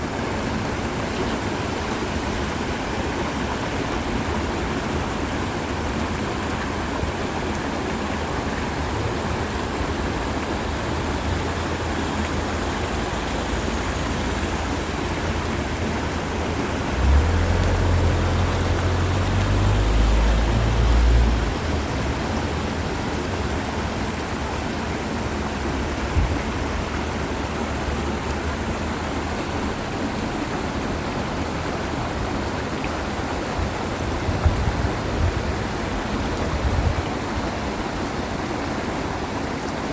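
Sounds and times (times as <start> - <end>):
stream flowing over rocks: 0.0 - 39.9
wind rumble on microphone: 33.5 - 37.6.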